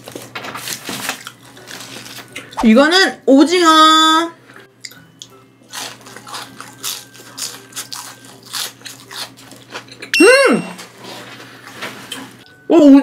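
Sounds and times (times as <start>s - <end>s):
crunchy bites and chewing: 5.7s - 10.0s.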